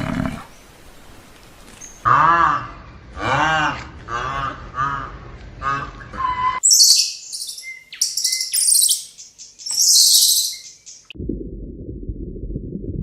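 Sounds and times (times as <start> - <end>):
small birds chirping: 6.6 - 11.1.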